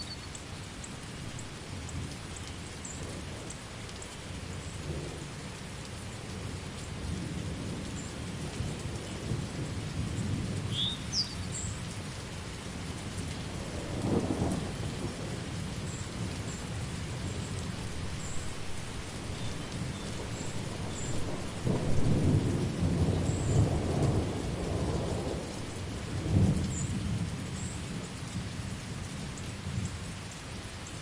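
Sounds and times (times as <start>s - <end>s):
steady rain falling: 0.0s - 31.0s
low rolling thunder: 12.8s - 28.8s.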